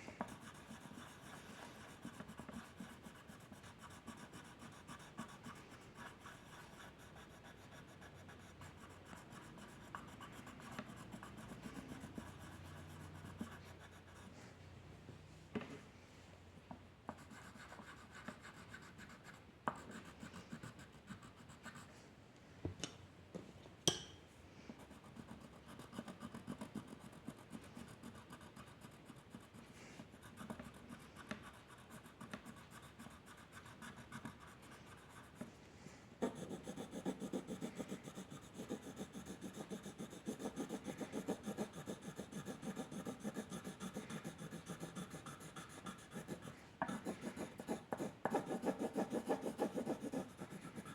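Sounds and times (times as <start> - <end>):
drawing tool scratching paper: 0.3 - 14.3, 24.8 - 35.5, 36.2 - 50.9.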